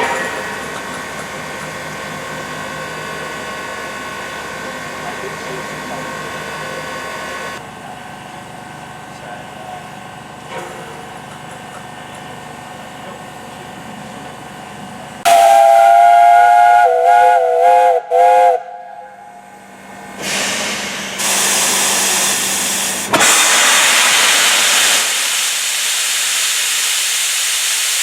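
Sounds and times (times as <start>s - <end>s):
steam whistle blast: 15.3s - 20.5s
steam hissing: 20.1s - 28.0s.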